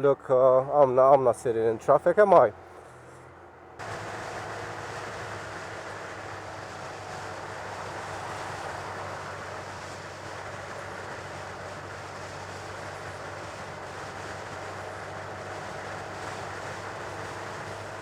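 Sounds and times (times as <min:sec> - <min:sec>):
motorcycle engine running: 0:03.8 - 0:18.0.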